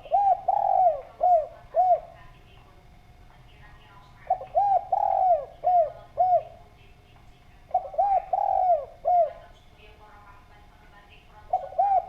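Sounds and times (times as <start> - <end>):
dove cooing: 0.0 - 2.4, 4.0 - 6.8, 7.6 - 9.6, 11.3 - 12.0.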